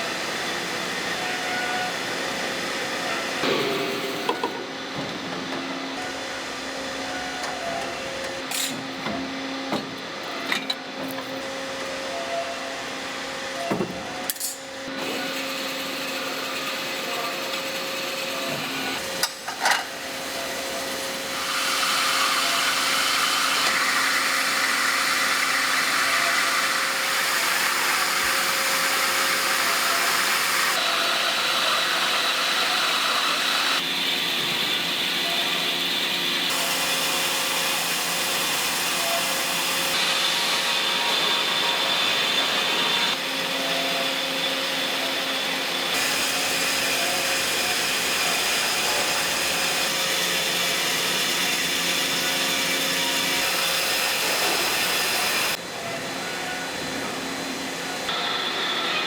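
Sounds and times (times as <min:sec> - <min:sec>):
loud even machine noise: 0:00.0 - 0:10.6.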